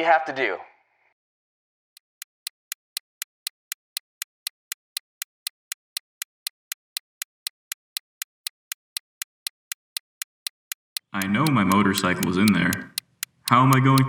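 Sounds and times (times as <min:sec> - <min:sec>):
clock ticking: 0:02.0 - 0:14.0.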